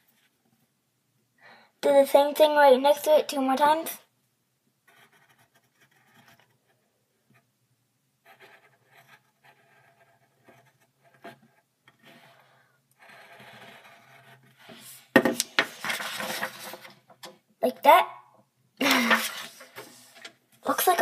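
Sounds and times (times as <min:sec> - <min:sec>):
drawing tool scratching paper: 0:04.9 - 0:07.4, 0:08.2 - 0:15.1.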